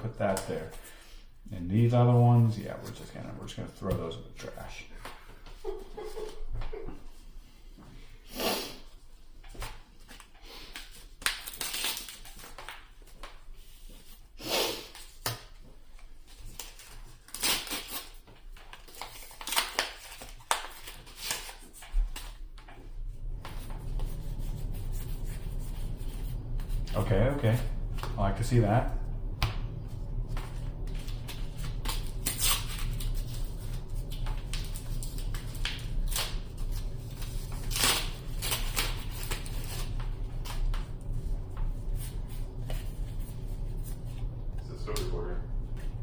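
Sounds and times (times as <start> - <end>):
cards and wrappers rustling: 9.6 - 13.2, 16.2 - 22.4, 30.6 - 41.2
low hum: 21.8 - 46.0.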